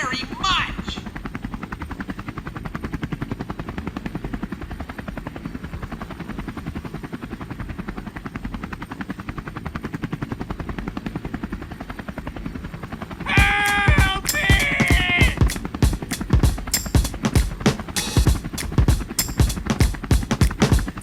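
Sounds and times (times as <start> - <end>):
helicopter rotor chopping: 7.4 - 21.0.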